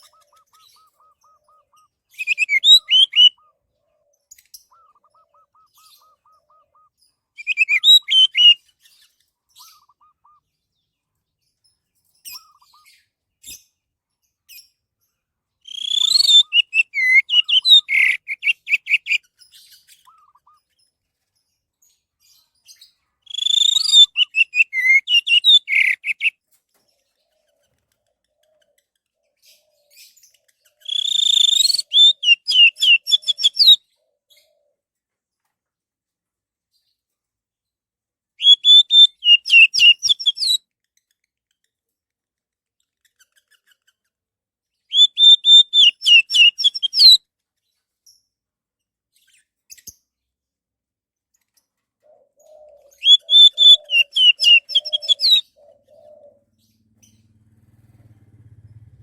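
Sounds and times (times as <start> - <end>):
thrush whistled song: 0.0 - 3.5, 4.7 - 8.6, 15.7 - 19.2, 23.3 - 26.3, 30.8 - 33.8, 38.4 - 40.6, 44.9 - 47.2, 53.0 - 55.4.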